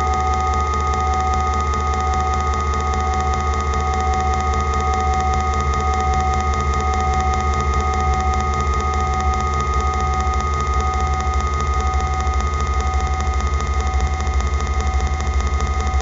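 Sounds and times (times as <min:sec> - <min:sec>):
machine drone with whining tones: 0:00.0 - 0:16.0.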